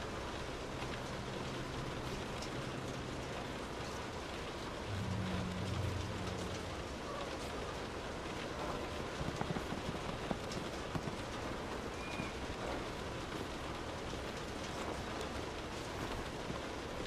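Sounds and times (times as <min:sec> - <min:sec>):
steady rain: 0:00.0 - 0:17.0
low rumble: 0:04.7 - 0:08.6.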